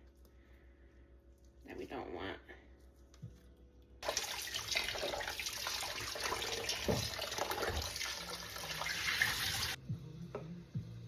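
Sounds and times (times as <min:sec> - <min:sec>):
tap water running: 0:04.0 - 0:09.8.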